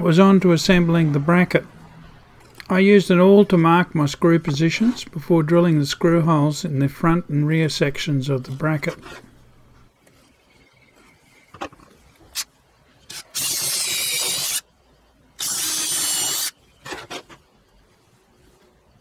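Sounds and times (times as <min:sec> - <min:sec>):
power drill boring into wood: 0:13.1 - 0:14.6, 0:15.4 - 0:16.5.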